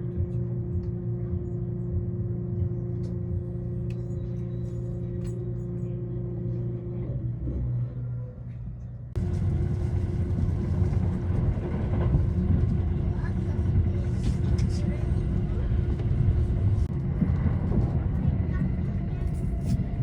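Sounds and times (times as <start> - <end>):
train rumble and hum inside: 0.0 - 20.0
train wheels rumbling on track: 9.2 - 20.0.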